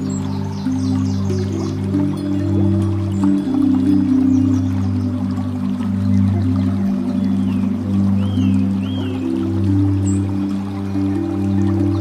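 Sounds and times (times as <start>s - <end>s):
ambient meditation music: 0.0s - 12.0s
flowing water hiss: 0.0s - 12.0s
faint bird chirps: 6.0s - 10.3s.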